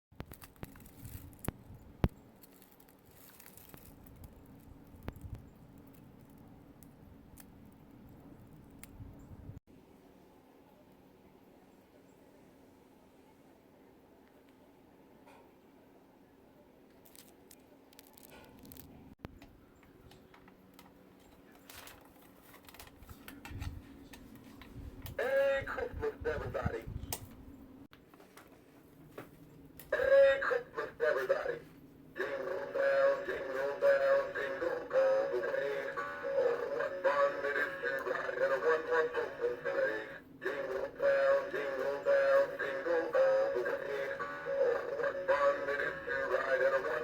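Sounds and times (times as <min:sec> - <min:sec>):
handling noise clicks and rustling: 0:00.2 - 0:08.9, 0:20.1 - 0:24.7
faint low hum: 0:00.2 - 0:47.0
low steady hum: 0:28.8 - 0:47.0.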